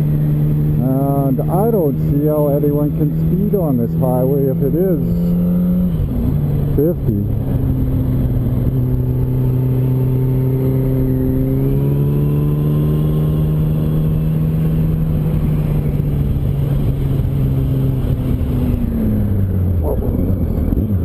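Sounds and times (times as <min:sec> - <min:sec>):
motorcycle engine accelerating: 0:00.0 - 0:21.0
wind rumbling on microphone: 0:05.3 - 0:21.0.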